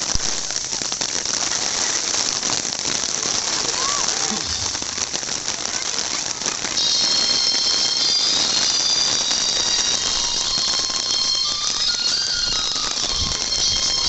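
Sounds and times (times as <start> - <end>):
heavy rain on pavement: 0.0 - 14.0
high steady ringing tones: 6.7 - 14.0.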